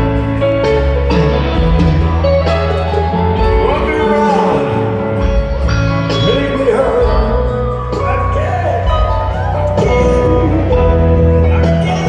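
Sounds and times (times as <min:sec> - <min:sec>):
bass and drums: 0:00.0 - 0:12.0.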